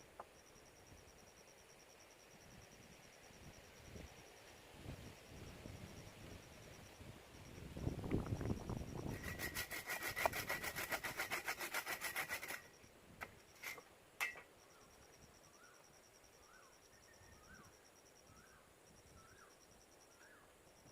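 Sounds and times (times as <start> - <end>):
hand saw cutting wood: 9.1 - 12.7, 13.6 - 13.8.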